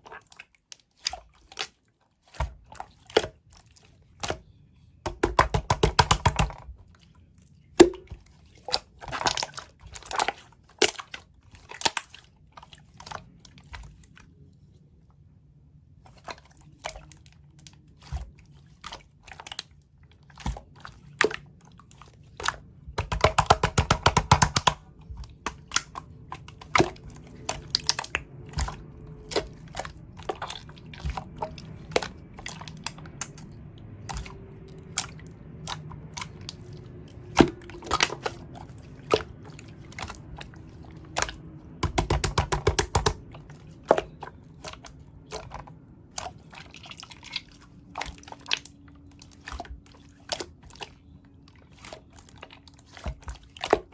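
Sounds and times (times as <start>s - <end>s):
slime squished by hand: 16.2s - 53.9s.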